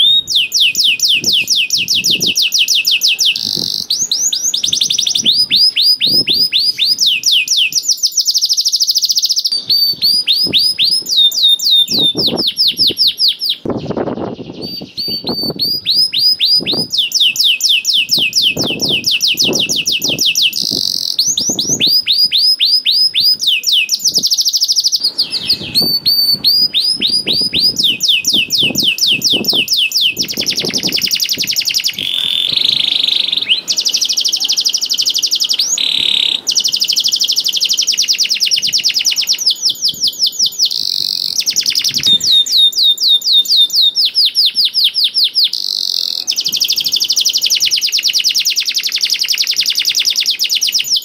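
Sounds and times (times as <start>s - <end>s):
canary singing trills: 0.0s - 51.0s.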